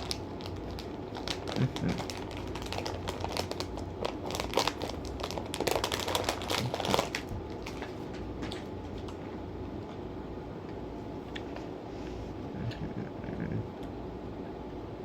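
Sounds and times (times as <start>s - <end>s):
plastic candy bag crinkling: 0.0s - 9.2s.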